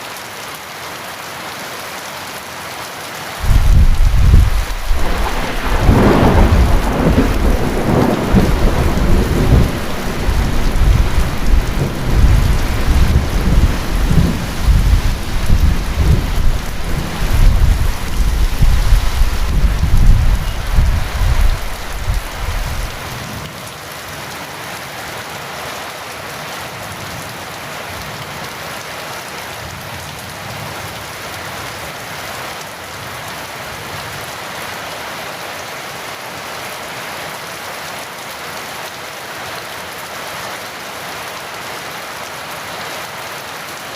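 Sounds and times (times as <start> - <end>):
heavy rain hiss: 0.0 - 43.9
rolling thunder rumble: 3.4 - 23.2.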